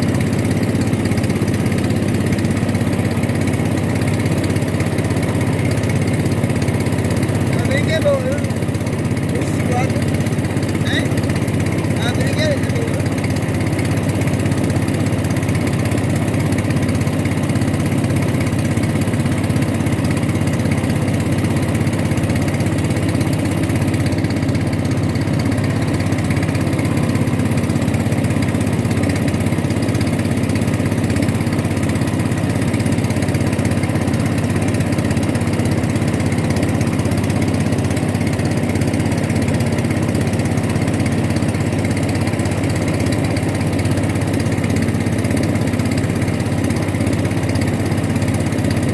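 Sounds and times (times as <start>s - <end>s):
boat engine running: 0.0s - 48.9s.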